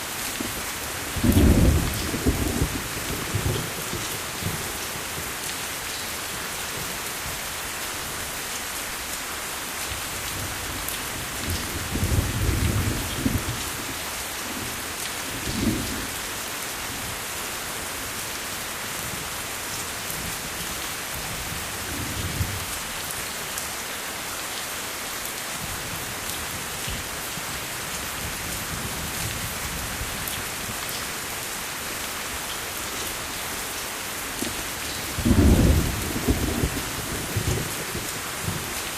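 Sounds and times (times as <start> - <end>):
steady rain falling: 0.0 - 38.9
low rumbles of thunder: 1.1 - 4.6, 11.4 - 13.7, 35.1 - 38.7.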